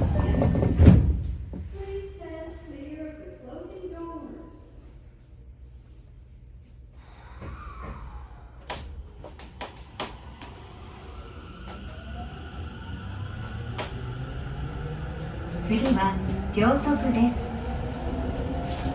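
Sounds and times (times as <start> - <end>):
train clunks: 8.6 - 10.8, 11.5 - 12.5, 13.1 - 18.9
train running rumble: 8.6 - 18.9
inverter whine rising: 8.7 - 18.9.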